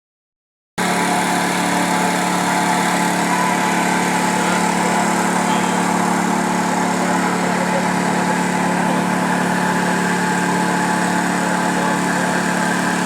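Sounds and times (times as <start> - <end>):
motor humming: 0.8 - 13.0.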